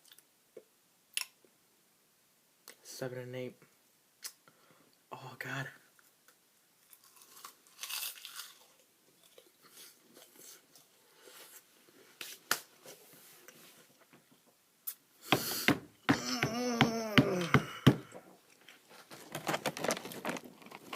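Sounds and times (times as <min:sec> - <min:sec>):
seaweed snack chewing and tearing: 0:06.8 - 0:10.9.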